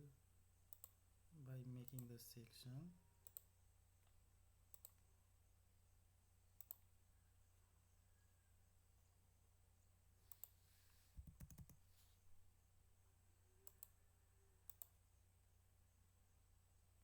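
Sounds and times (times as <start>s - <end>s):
low steady hum: 0.0s - 17.0s
computer mouse clicks: 0.7s - 1.0s, 1.9s - 2.1s, 3.2s - 5.0s, 6.6s - 6.8s, 10.3s - 10.6s, 11.2s - 11.8s, 13.6s - 14.0s, 14.7s - 15.0s.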